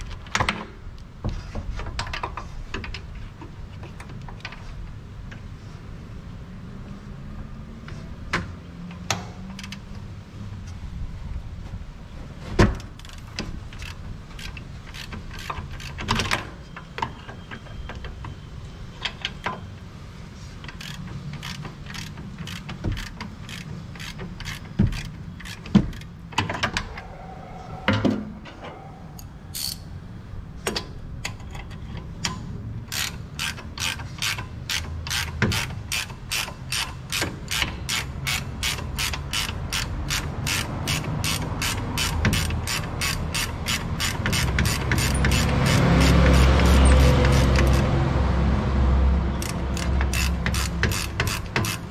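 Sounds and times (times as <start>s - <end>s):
ratchet wrench clicking: 13.0s - 16.1s, 20.7s - 26.1s, 29.5s - 29.9s, 32.9s - 47.9s, 49.4s - 51.9s.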